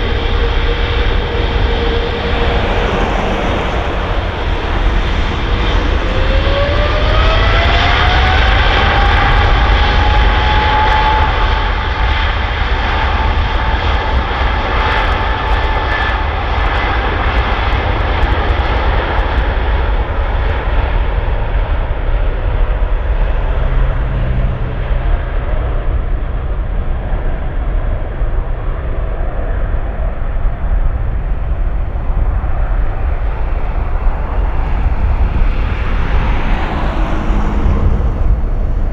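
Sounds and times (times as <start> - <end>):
jet engines spooling up: 0.0 - 10.0, 26.4 - 38.9.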